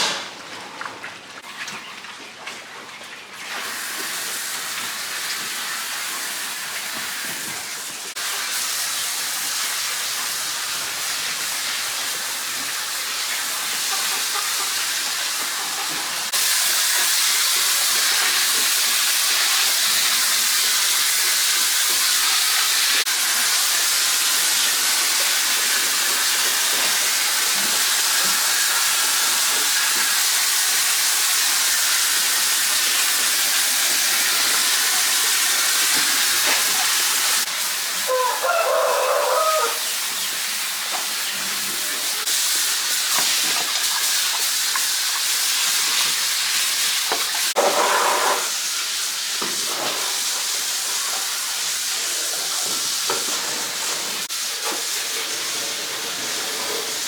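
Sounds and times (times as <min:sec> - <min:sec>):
rooster crowing: 0:38.0 - 0:39.9.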